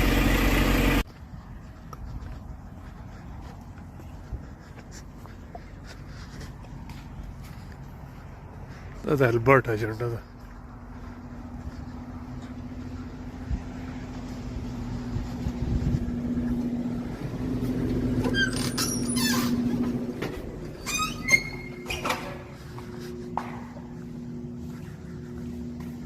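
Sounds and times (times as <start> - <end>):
vehicle engine drone: 0.0 - 26.0
short high squeaks: 18.1 - 22.7.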